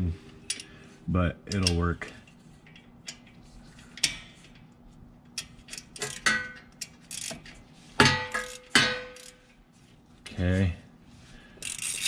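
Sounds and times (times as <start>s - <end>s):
socket wrench clicking on bolts: 5.3s - 7.4s.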